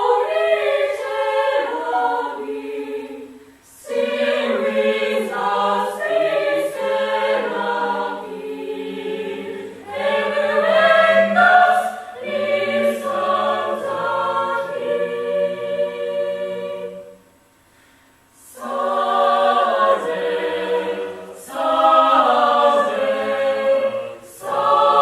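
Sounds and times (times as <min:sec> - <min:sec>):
a cappella group singing harmony: 0:00.0 - 0:17.3, 0:18.4 - 0:25.0.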